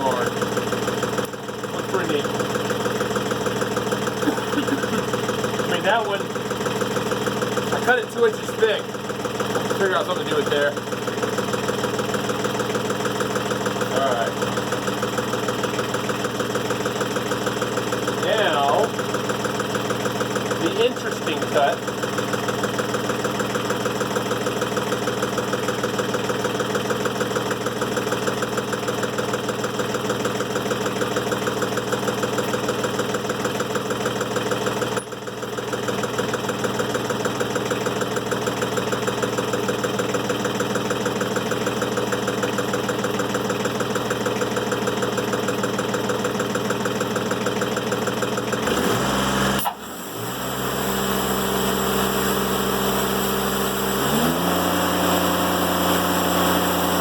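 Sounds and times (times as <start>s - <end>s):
sawmill engine running: 0.0s - 57.0s
saw cutting through log: 20.5s - 21.8s, 48.6s - 57.0s.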